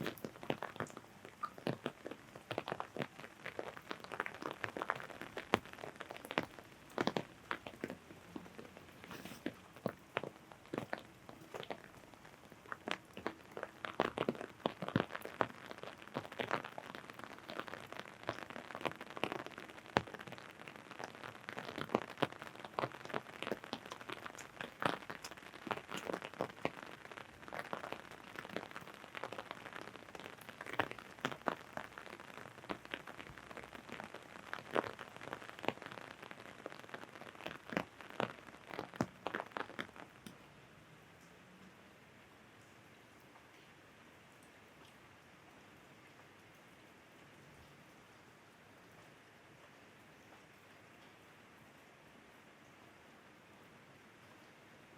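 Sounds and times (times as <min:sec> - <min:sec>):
raindrops tapping on umbrella: 0:00.0 - 0:40.4
steady hiss of rain: 0:00.0 - 0:54.9.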